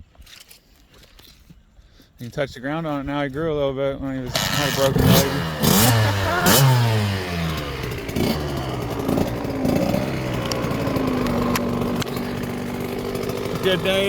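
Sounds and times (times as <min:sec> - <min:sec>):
dirt bike engine revving: 0:04.3 - 0:14.0.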